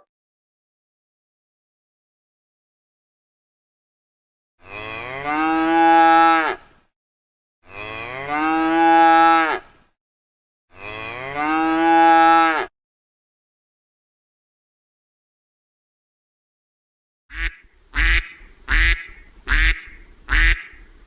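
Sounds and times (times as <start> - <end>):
cow mooing: 4.6 - 6.6, 7.6 - 9.7, 10.7 - 12.7.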